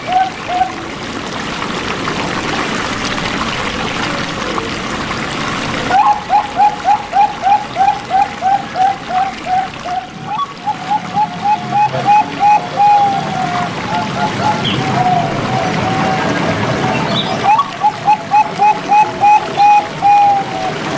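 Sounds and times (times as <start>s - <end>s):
dove cooing: 0.0s - 0.9s, 5.8s - 20.9s
water trickling: 0.0s - 20.9s.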